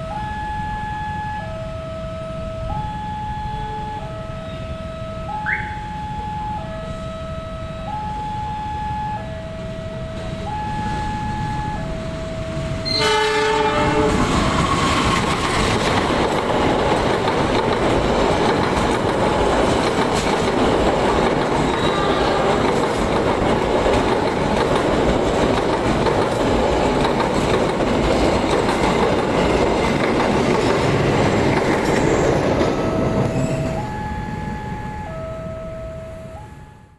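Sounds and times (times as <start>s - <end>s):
two-tone warning alarm beeps: 0.0s - 13.1s, 32.1s - 36.9s
train horn blast: 12.6s - 14.8s, 21.7s - 22.8s
train wheels clattering over rails: 13.8s - 33.8s.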